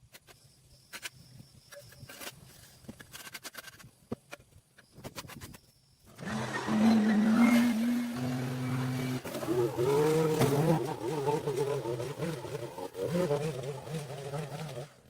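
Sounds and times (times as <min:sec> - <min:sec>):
engine starting and running: 0:06.1 - 0:15.0.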